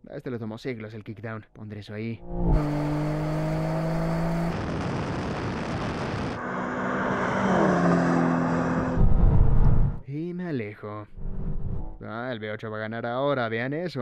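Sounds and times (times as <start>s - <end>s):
car engine accelerating hard: 2.2s - 10.0s
rushing wind and road noise: 2.5s - 10.0s.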